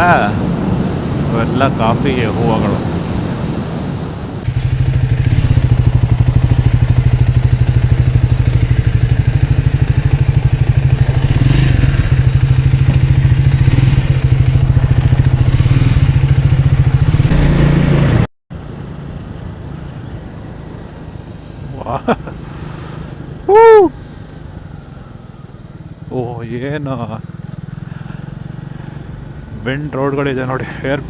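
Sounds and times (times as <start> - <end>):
quiet riding noise: 0.0 - 31.0
motorcycle engine running: 4.4 - 18.3, 24.0 - 29.8.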